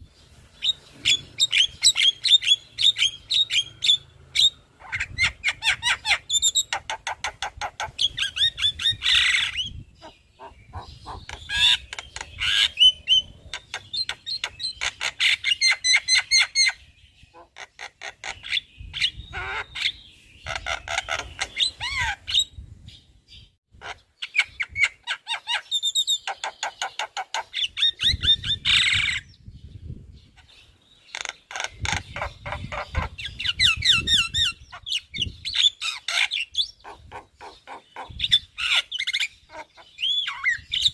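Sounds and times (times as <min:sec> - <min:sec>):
myna chattering and squawking: 0:04.8 - 0:16.7, 0:17.3 - 0:22.4, 0:31.1 - 0:40.9.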